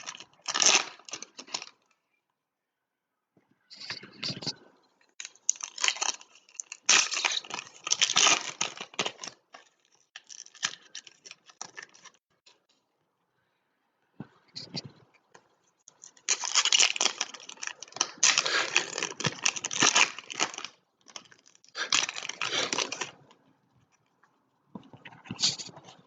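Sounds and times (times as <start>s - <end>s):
foil wrappers tearing and crinkling: 0.0s - 1.8s, 5.2s - 12.2s, 16.1s - 23.2s.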